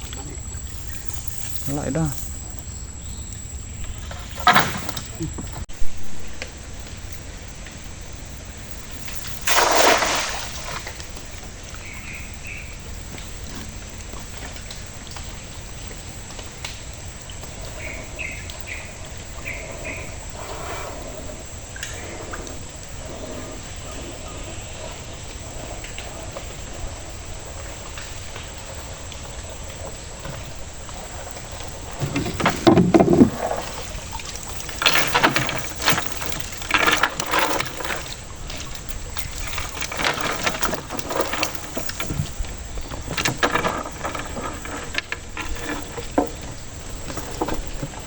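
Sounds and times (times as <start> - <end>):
low outdoor background noise: 0.0 - 48.0
water splash: 9.0 - 11.3
faint ticks: 10.9 - 32.7.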